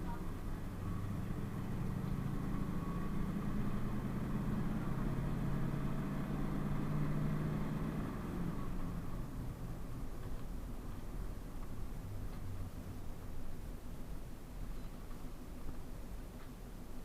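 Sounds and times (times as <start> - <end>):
bus engine running: 0.0 - 17.0.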